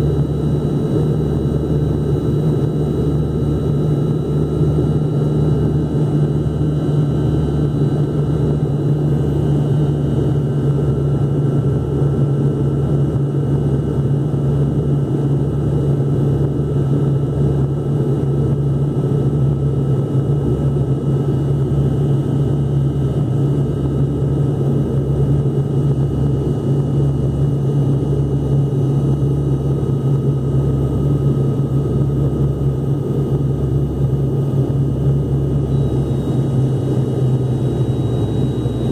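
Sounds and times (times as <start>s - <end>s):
airliner cabin engine hum: 0.0s - 38.9s
faint high whining tones: 28.0s - 38.9s.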